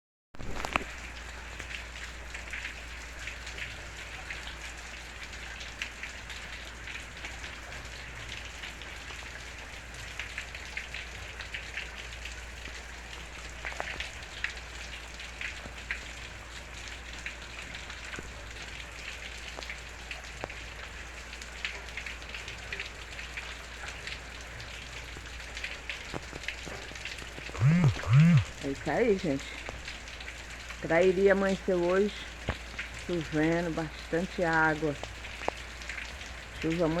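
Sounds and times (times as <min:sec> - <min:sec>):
steady rain falling: 0:00.4 - 0:37.0
low steady hum: 0:27.6 - 0:29.7.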